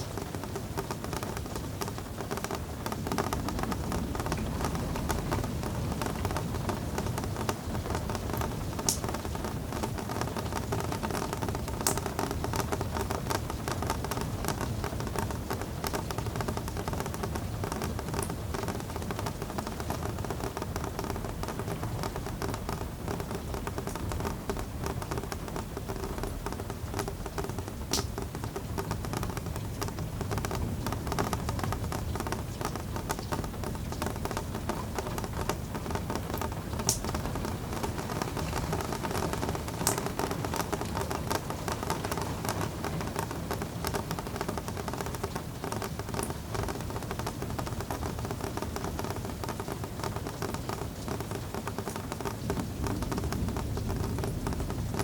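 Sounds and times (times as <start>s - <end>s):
rain pattering: 0.0s - 55.0s
sharp drip taps: 11.8s - 54.3s.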